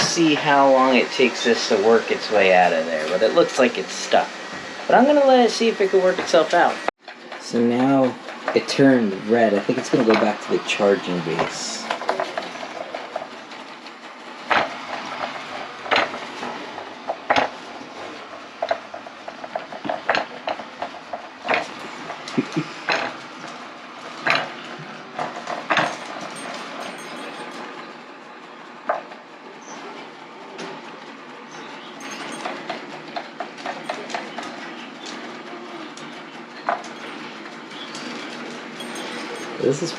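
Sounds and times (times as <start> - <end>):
robot vacuum humming: 0.0 - 6.9, 7.5 - 27.3.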